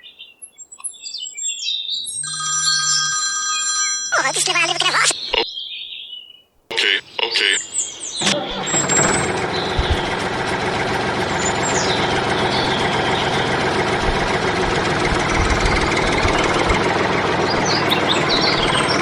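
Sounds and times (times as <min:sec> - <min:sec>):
birds chirping faintly: 0:00.0 - 0:19.0
engine running: 0:08.1 - 0:19.0.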